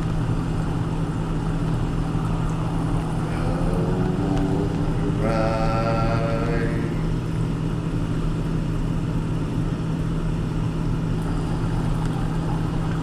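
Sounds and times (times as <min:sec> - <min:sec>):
road noise: 0:00.0 - 0:07.9
car engine drone: 0:00.0 - 0:13.0.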